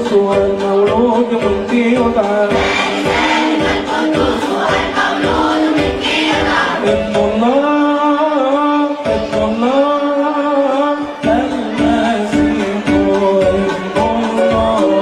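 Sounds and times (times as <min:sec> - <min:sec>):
steady beat: 0:00.3 - 0:07.2
choir singing a hymn: 0:02.5 - 0:07.0.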